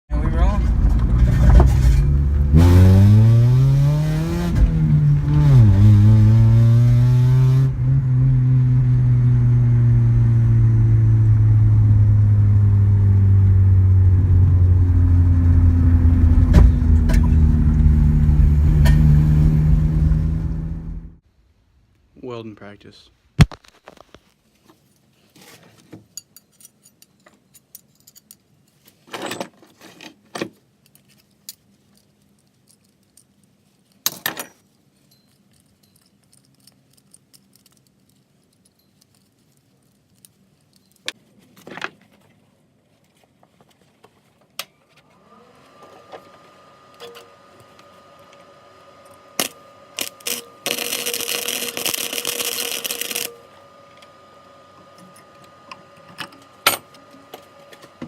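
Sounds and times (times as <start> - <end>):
metallic clinks and knocks: 26.1 - 30.2, 30.8 - 41.2
steady hum: 46.6 - 57.9
arc weld crackling and hissing: 47.5 - 54.4.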